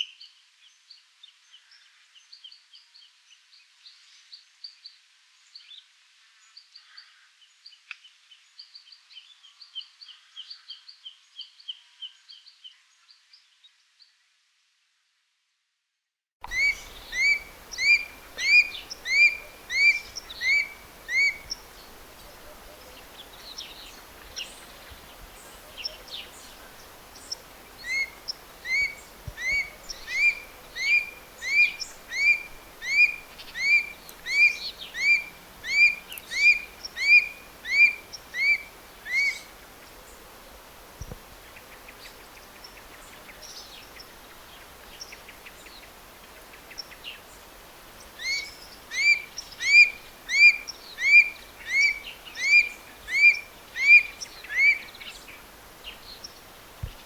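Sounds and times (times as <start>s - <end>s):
bird calling upward-curving notes: 16.4s - 24.7s, 27.2s - 39.5s, 48.2s - 55.2s
faint chirps of other birds: 16.4s - 57.0s.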